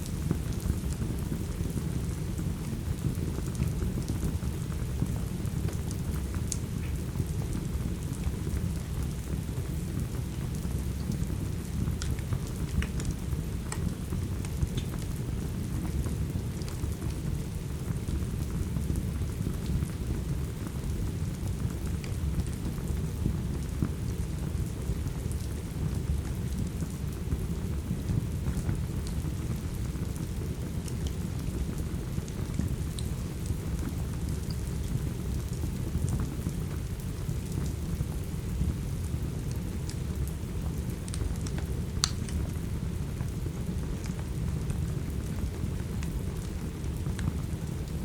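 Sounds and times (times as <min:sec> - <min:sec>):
steady rain: 0:00.0 - 0:48.0
fireplace crackling: 0:22.9 - 0:48.0.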